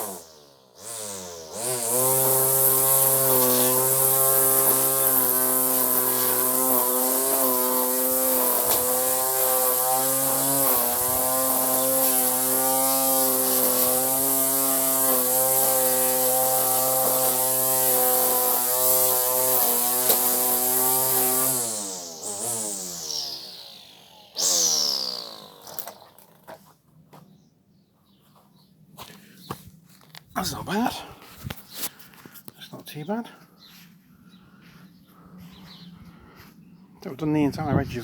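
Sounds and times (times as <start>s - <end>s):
trimmer spinning down whine: 0.0s - 26.5s
string trimmer cutting grass: 0.0s - 27.2s.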